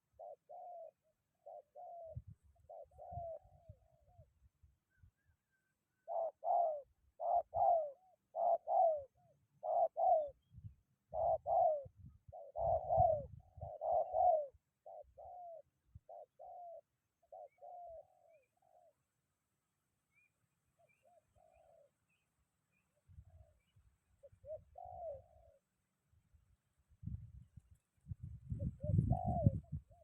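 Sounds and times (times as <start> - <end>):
dove cooing: 0.0 - 4.3, 6.0 - 19.0, 20.9 - 22.0, 23.1 - 25.7, 28.5 - 30.0
wind rumble on microphone: 2.1 - 4.4, 10.4 - 14.0, 26.9 - 30.0.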